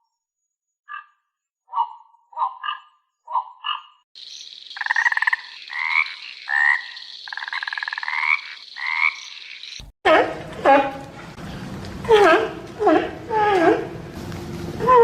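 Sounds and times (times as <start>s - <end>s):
frogs croaking: 0.9s - 9.9s.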